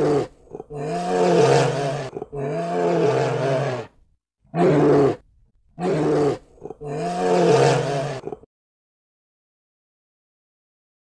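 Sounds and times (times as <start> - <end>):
bear roaring: 0.0 - 5.2, 5.8 - 8.5.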